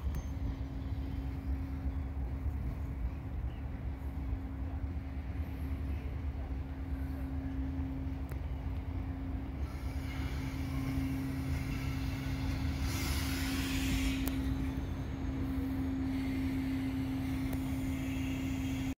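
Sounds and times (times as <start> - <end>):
train engine droning: 0.0 - 19.0.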